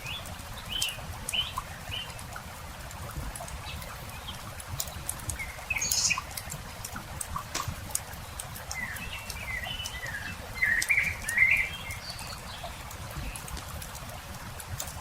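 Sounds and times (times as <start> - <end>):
campfire crackling and popping: 2.3 - 15.0
songbird singing: 5.3 - 6.5, 8.2 - 13.5.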